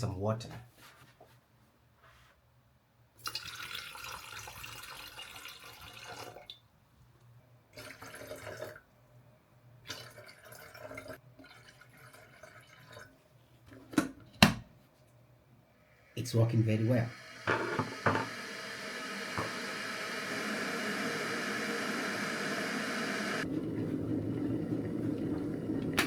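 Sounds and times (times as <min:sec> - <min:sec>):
tap water running into kettle: 0:17.1 - 0:26.0.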